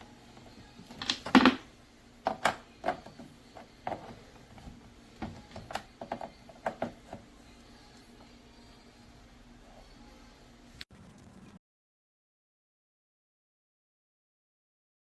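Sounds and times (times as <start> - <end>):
clicks and knocks: 0.8 - 7.2.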